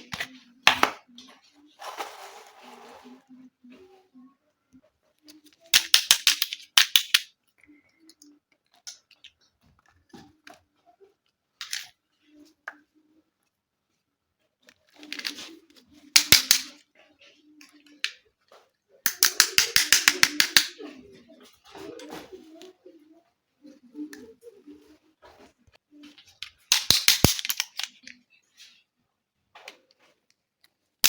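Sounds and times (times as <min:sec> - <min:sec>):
plastic toy pieces clicking: 0:05.4 - 0:07.3, 0:15.0 - 0:15.5, 0:16.1 - 0:16.8, 0:19.0 - 0:20.8, 0:26.4 - 0:28.2.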